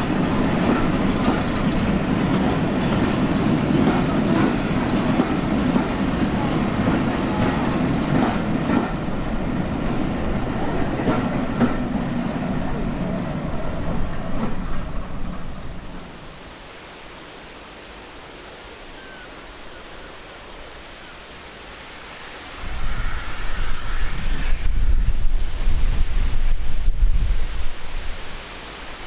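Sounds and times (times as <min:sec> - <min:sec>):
wheels clicking over rail joints: 0:00.0 - 0:16.2
train passing: 0:00.0 - 0:16.7, 0:21.9 - 0:28.1.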